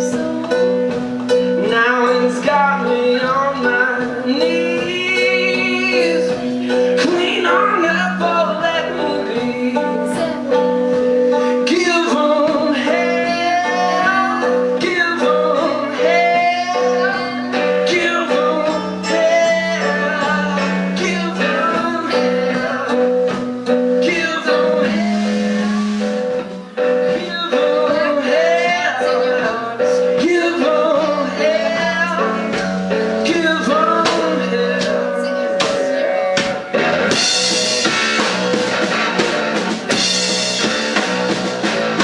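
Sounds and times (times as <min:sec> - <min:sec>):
person singing: 0:00.0 - 0:38.6
guitar: 0:00.0 - 0:42.0.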